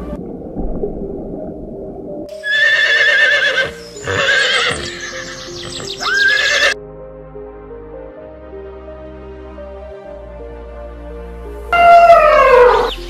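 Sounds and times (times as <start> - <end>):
soft background music: 0.0 - 13.0
shrill quavering animal calls: 2.4 - 6.8, 11.8 - 13.0.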